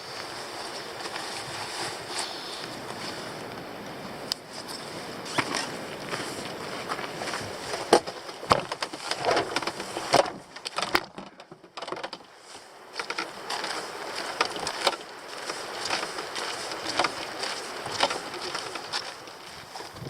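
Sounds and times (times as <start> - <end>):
crunching footsteps: 0.0 - 20.0
gear knocking and clattering: 7.6 - 12.3, 12.9 - 19.4.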